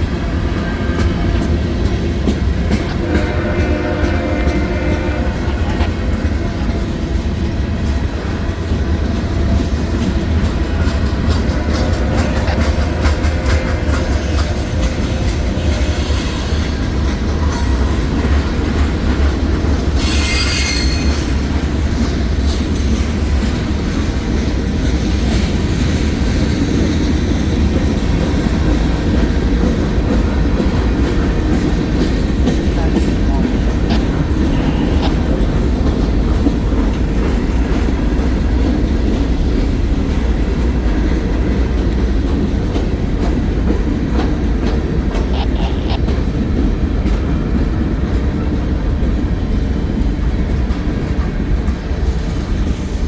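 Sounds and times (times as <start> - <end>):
freight train rumbling: 0.0 - 53.0
train wheel squealing: 9.4 - 23.4.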